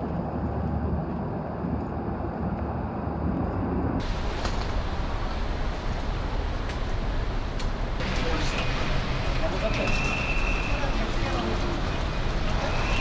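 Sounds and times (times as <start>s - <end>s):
hissy background noise: 4.0s - 13.0s
vehicle engine rumble: 4.0s - 13.0s.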